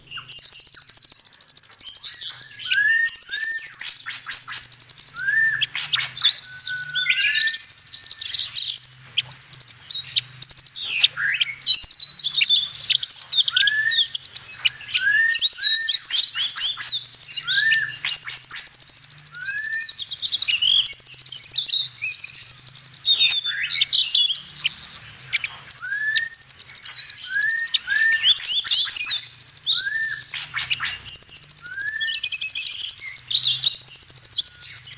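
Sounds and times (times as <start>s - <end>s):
birds chirping and twittering: 0.0s - 34.9s
high-pitched buzzing bird trills: 0.0s - 34.9s.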